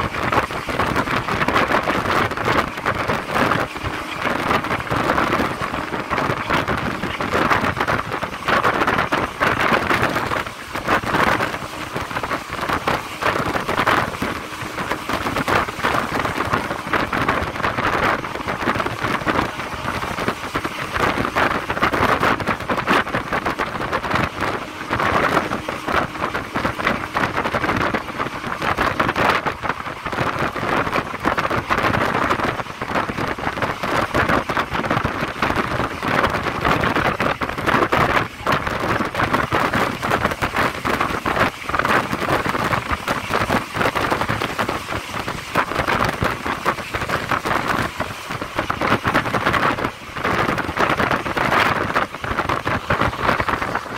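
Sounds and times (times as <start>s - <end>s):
rush of air: 0.0s - 53.9s
train rattling and clattering: 0.0s - 53.9s.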